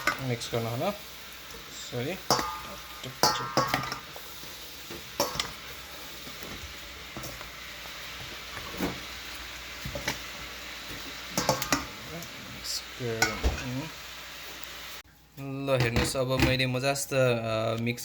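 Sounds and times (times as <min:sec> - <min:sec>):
wet squishing of stirring: 0:00.0 - 0:12.4.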